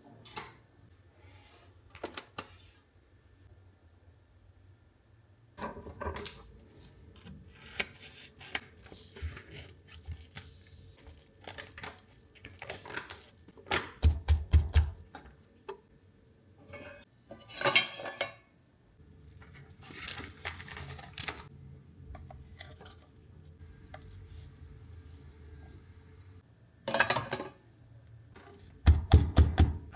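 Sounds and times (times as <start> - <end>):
dishes and utensils clinking: 16.6 - 18.5, 26.9 - 27.7.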